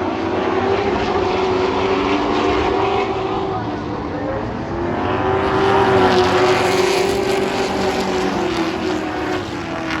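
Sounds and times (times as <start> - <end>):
race truck engines: 0.0 - 10.0.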